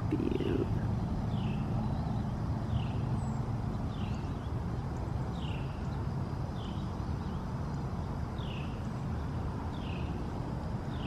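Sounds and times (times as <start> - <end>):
bird chirping: 0.0 - 6.0.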